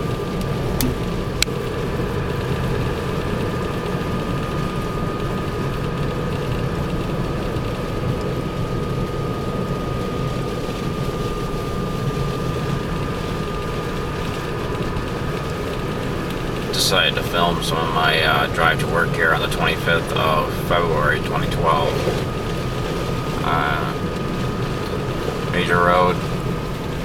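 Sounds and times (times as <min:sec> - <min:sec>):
car interior road rumble: 0:00.0 - 0:27.0
sharp click: 0:00.8 - 0:01.1
thin high whine: 0:23.2 - 0:26.6.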